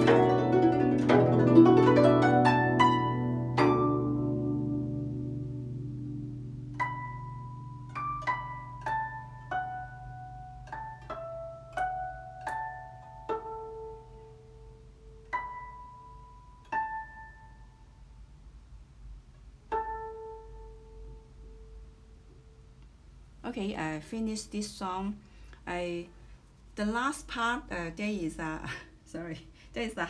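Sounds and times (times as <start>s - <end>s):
guzheng plucked harmonics: 0.0s - 18.0s, 19.5s - 22.8s.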